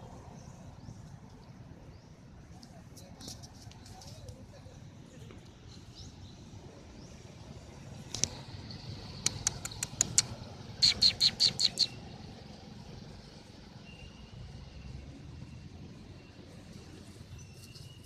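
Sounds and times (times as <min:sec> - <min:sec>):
sharp bird-like calls: 0:09.2 - 0:12.0.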